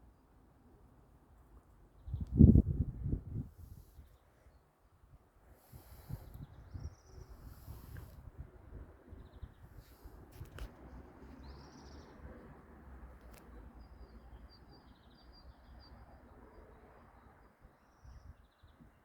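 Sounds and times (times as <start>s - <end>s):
small birds chirping: 5.6s - 8.2s, 9.1s - 12.5s, 13.1s - 19.0s.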